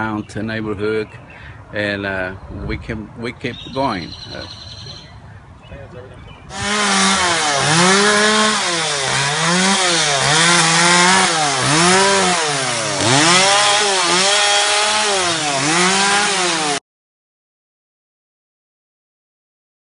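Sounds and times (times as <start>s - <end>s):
chainsaw cutting wood: 6.5s - 16.8s.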